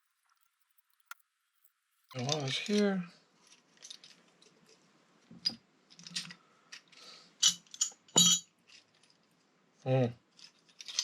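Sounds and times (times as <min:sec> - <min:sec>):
metal parts clinking: 0:05.4 - 0:08.8, 0:10.4 - 0:11.0.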